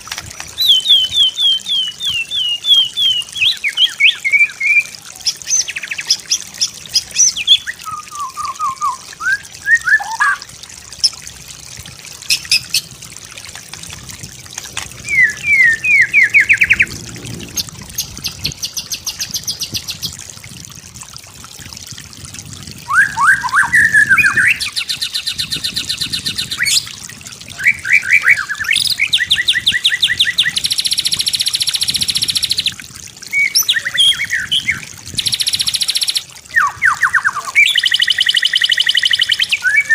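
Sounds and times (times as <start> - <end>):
bird singing varied song: 0.6 - 10.4, 15.0 - 17.0, 22.9 - 26.9, 27.5 - 32.7, 33.3 - 39.9.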